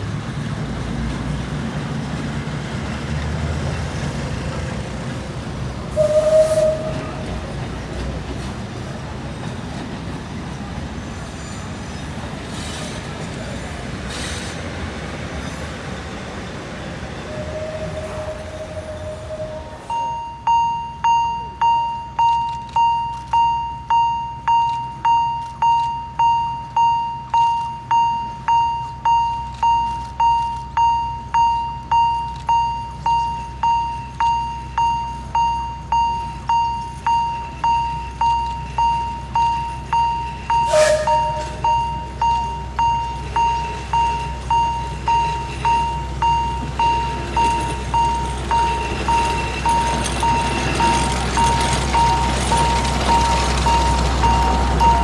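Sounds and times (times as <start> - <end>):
train rumbling: 0.0 - 55.0
train squeal: 3.6 - 20.9, 25.7 - 55.0
level crossing warning bell: 17.2 - 55.0.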